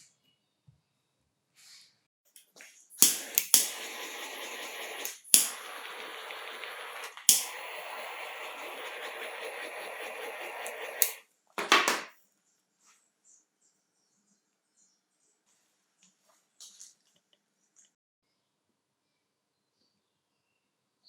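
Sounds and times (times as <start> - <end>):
sharp click: 3.0 - 11.2
steady hiss: 3.0 - 11.2.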